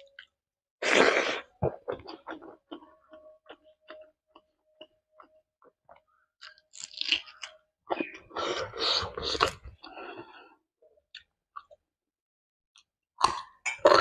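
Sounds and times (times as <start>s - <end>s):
crunchy chewing: 6.4s - 9.7s.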